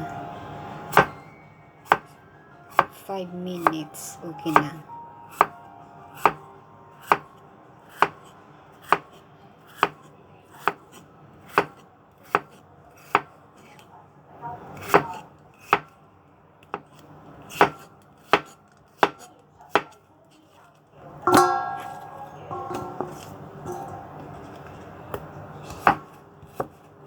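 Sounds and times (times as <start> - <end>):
knife knocking on cutting board: 21.3 - 23.8.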